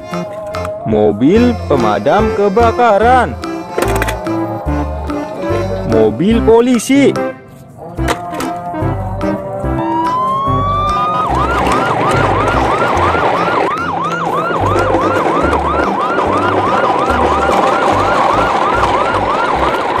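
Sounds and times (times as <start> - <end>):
low rhythmic beat: 0.0 - 7.4
electronic police siren: 9.8 - 20.0.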